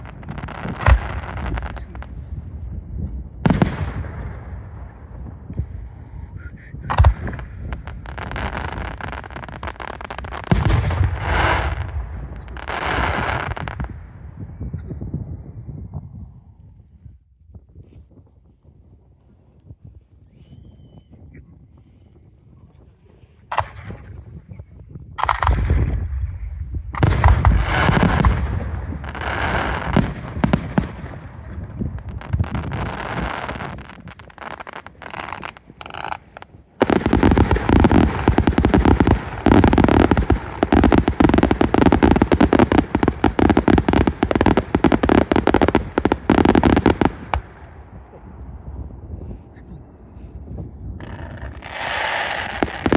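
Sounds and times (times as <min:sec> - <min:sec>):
fireworks crackling: 0:00.0 - 0:05.7, 0:06.9 - 0:13.9, 0:27.0 - 0:48.2, 0:51.0 - 0:52.9
fireworks booming: 0:00.0 - 0:15.4, 0:25.2 - 0:49.5, 0:51.0 - 0:52.9
firework shells bursting: 0:32.4 - 0:47.6.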